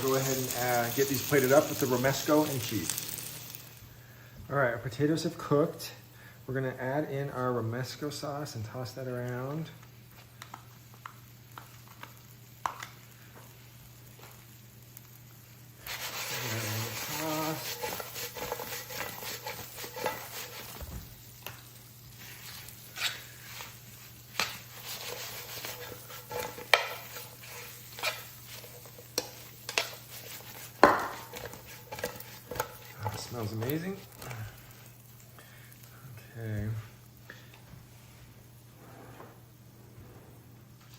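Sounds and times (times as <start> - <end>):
potatoes sizzling in a hot pan: 0.0 - 6.9, 7.6 - 37.6
utensil scraping a pan: 15.8 - 20.9, 22.1 - 34.1.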